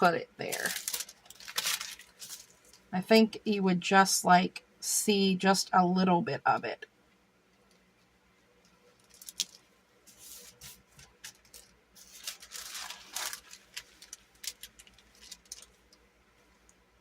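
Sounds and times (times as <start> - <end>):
paper rustling: 0.5 - 2.8, 9.0 - 15.8.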